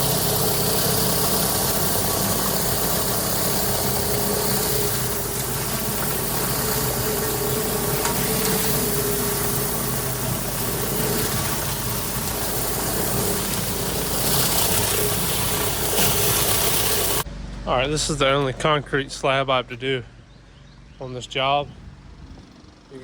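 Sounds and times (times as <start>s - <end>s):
high-pressure water hiss: 0.0s - 17.2s
pressure washer engine running: 0.0s - 18.6s.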